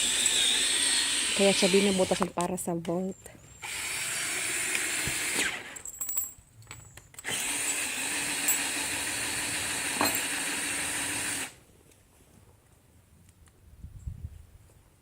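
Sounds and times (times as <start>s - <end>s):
electric drill boring through wood: 0.0s - 2.3s, 3.6s - 5.8s, 7.2s - 11.6s.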